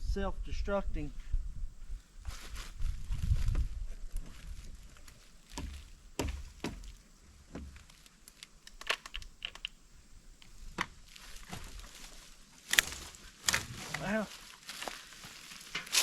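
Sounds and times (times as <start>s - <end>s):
chainsaw being handled clicking: 8.6s - 9.8s.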